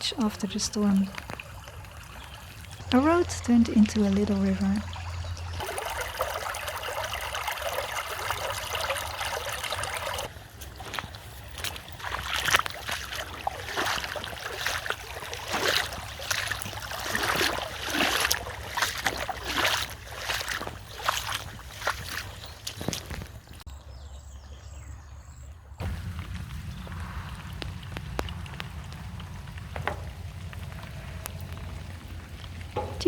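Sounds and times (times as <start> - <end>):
rainwater running down road: 0.0 - 23.7, 25.8 - 33.0
splashing water surges: 5.5 - 10.4, 11.0 - 23.0, 25.8 - 33.0
knocks: 32.8 - 33.0.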